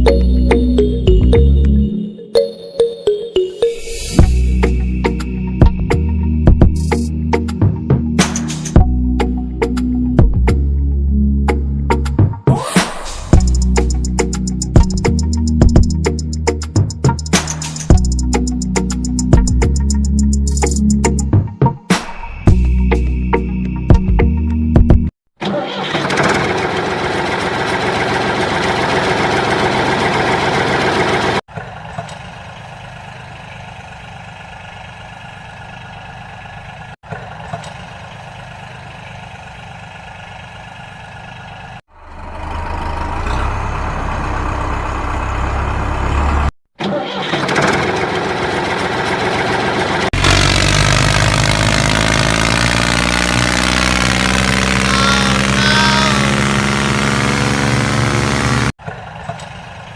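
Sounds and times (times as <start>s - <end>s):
engine running: 13.4s - 21.2s, 25.8s - 59.9s.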